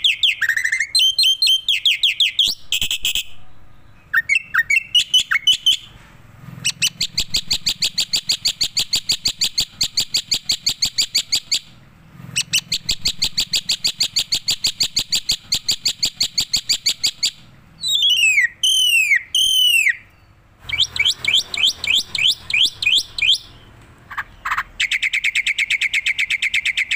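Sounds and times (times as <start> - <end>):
loud swooping whistles: 4.1 - 23.7.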